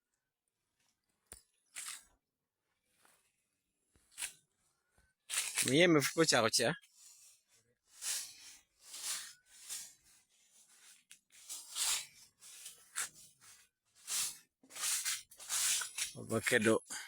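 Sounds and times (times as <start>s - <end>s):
footsteps crunching dry vegetation: 10.8s - 17.0s.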